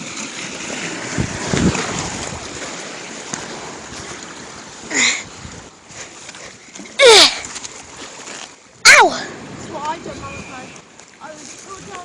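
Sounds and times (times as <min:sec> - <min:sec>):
sea waves washing against rocks: 0:00.0 - 0:12.0
wind buffeting microphone: 0:00.6 - 0:06.2, 0:09.2 - 0:12.0
person calling out: 0:07.0 - 0:07.4, 0:08.9 - 0:09.3.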